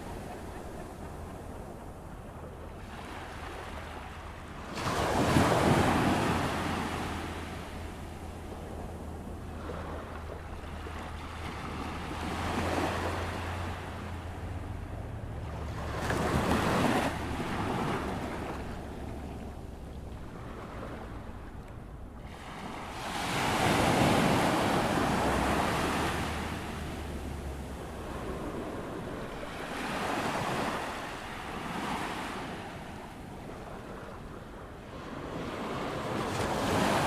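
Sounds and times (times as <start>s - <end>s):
surf breaking on a beach: 22.2s - 34.4s.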